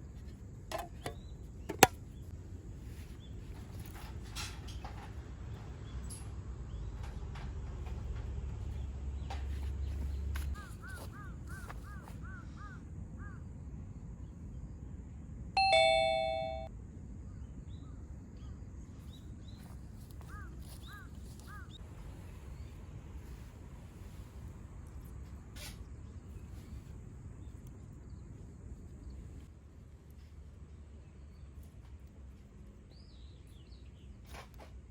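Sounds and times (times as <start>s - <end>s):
bell-like ding: 15.6s - 16.7s.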